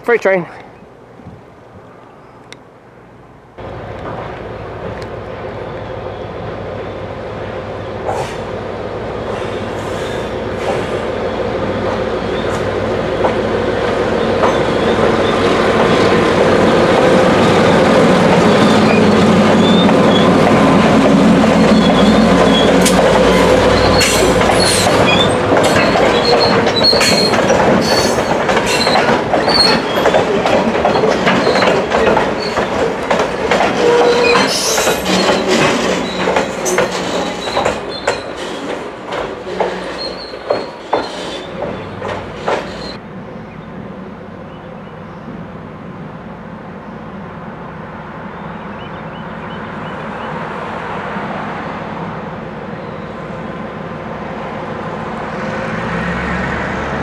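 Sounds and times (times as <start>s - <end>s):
diesel locomotive engine: 0.0s - 57.0s
wheels clicking over rail joints: 13.1s - 43.0s
wheel squeal: 18.5s - 20.3s, 21.6s - 30.2s, 30.9s - 31.8s, 33.8s - 38.7s, 39.5s - 43.0s.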